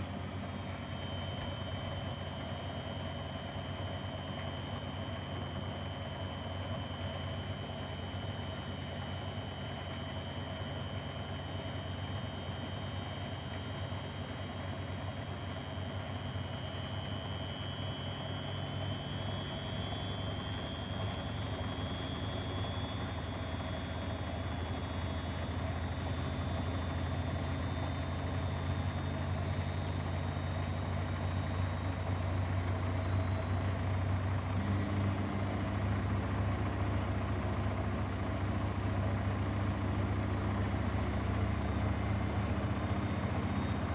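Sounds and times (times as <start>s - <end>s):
washing machine spinning: 11.0s - 43.9s.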